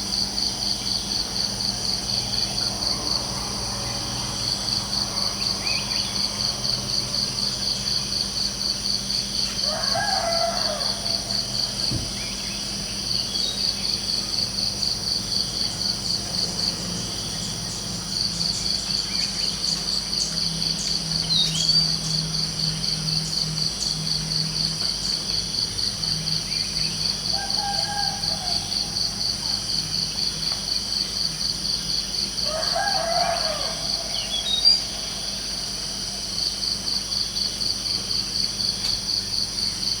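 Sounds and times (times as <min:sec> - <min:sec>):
crickets chirping: 0:00.0 - 0:40.0
rooster crowing: 0:09.6 - 0:11.7, 0:27.2 - 0:29.6, 0:32.4 - 0:36.0.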